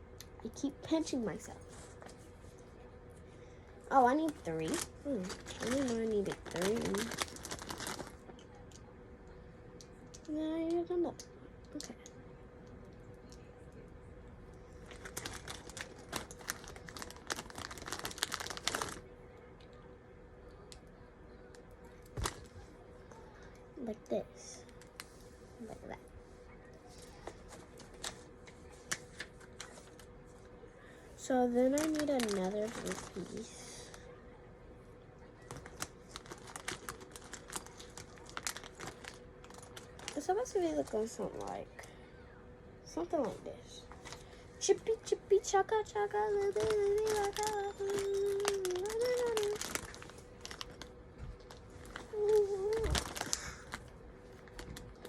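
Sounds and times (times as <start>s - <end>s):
faint steady hum: 0.0s - 55.0s
hands rummaging plastic pieces: 4.5s - 8.1s, 35.5s - 40.2s, 46.5s - 50.8s, 51.4s - 53.8s.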